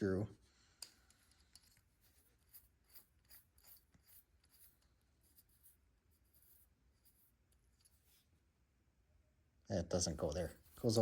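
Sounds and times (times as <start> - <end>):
small metal parts scraping and clicking: 0.8 - 4.9.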